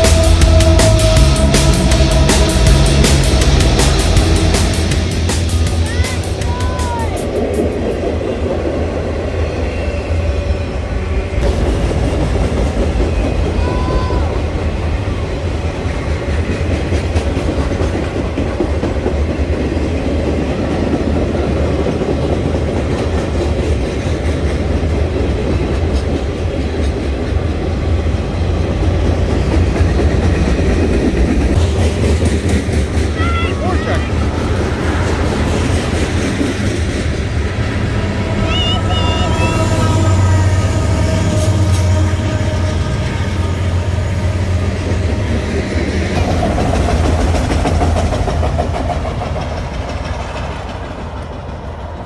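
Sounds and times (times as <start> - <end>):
train wheels rumbling on rails: 0.0 - 52.0
wheels clacking over rail joints: 44.0 - 52.0.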